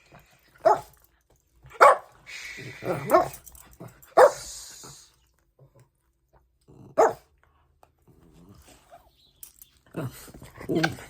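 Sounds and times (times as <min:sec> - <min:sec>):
dog barking: 0:00.6 - 0:00.9, 0:01.8 - 0:02.1, 0:02.9 - 0:03.4, 0:04.2 - 0:04.5, 0:07.0 - 0:07.3.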